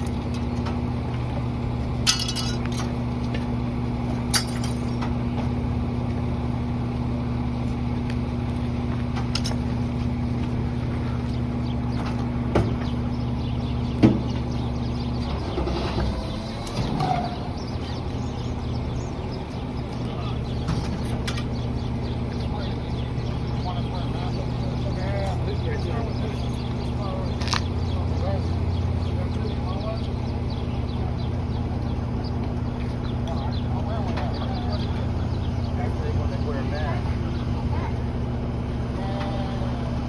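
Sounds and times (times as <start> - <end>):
garbage truck engine idling: 0.0 - 40.0
debris clinking and knocking: 2.0 - 3.0, 4.3 - 5.1.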